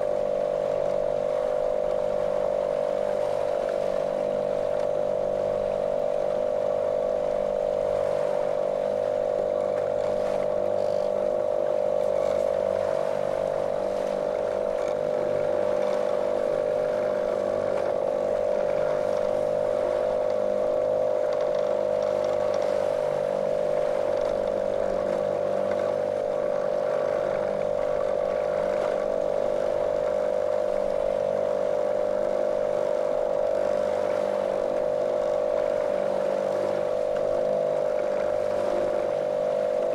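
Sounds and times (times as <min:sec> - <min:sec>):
motorboat motor droning: 0:00.0 - 0:39.9.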